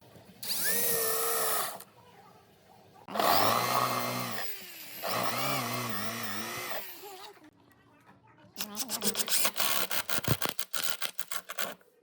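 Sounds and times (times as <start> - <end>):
power tool motor running: 3.1 - 7.3.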